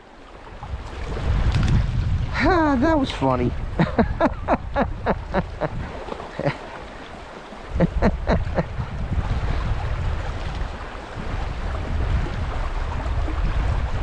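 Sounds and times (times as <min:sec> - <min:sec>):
creek rushing: 0:00.0 - 0:14.0
wind buffeting microphone: 0:00.0 - 0:14.0
person chuckling: 0:03.8 - 0:06.7, 0:07.7 - 0:08.8.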